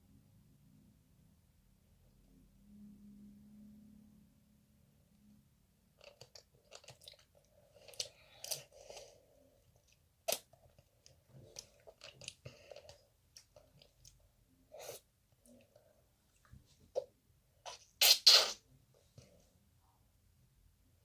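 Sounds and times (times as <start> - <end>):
chewing crunchy sugar coating: 6.0 - 9.2, 9.8 - 14.2.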